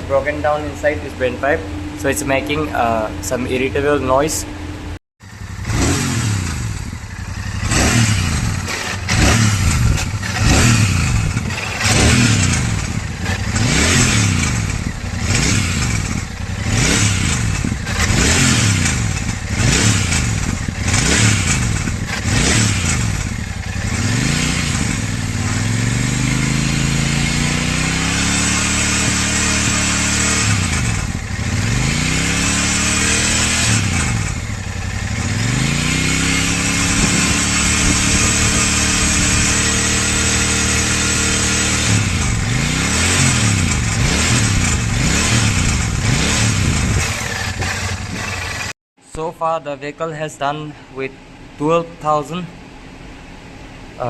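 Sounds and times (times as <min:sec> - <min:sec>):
motorcycle engine revving: 0:00.0 - 0:48.8
rattling from broken exhaust pipe: 0:06.8 - 0:23.9, 0:45.8 - 0:48.8.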